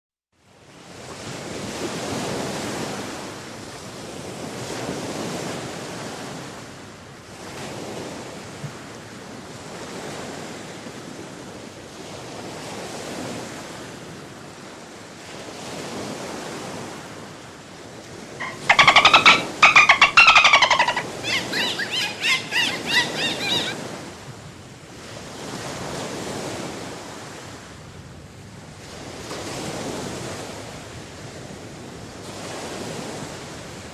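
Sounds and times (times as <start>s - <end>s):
dolphin clicks and whistles: 18.4s - 23.8s
rapid chirping calls: 18.4s - 23.8s
ocean surf washing: 18.4s - 23.9s.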